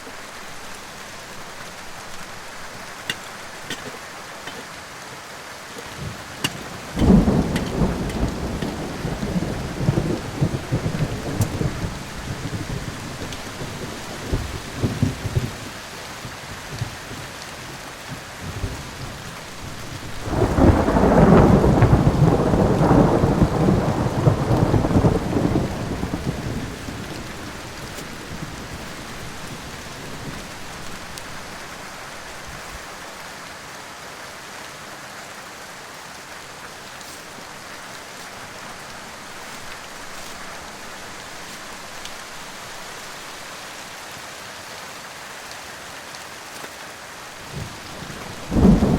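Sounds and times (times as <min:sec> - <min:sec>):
steady rain: 0:00.0 - 0:48.9
thunder rolling: 0:05.8 - 0:15.5, 0:20.0 - 0:31.0, 0:47.5 - 0:48.9.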